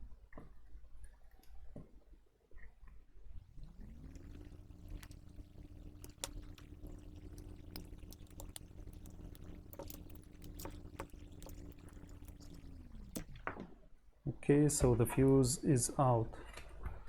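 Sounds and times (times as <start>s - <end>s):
sharp clicks and taps: 3.6s - 13.4s
small electric motor spinning: 3.6s - 13.4s.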